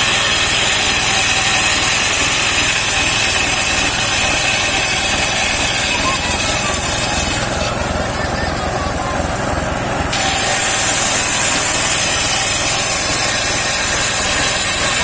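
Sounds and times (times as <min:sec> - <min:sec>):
engine humming: 0:00.0 - 0:15.0
saw blade whine cutting wood: 0:00.0 - 0:15.0.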